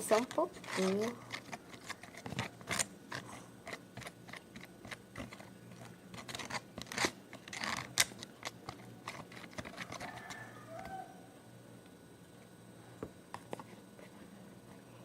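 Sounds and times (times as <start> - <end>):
spoon stirring slime in bowl: 0.0 - 11.0.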